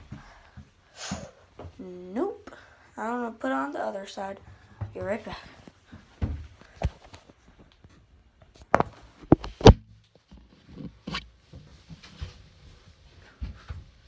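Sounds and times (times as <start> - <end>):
footsteps: 0.0 - 1.8, 4.2 - 8.0, 8.6 - 14.0
handling knocks and thumps: 4.8 - 7.3.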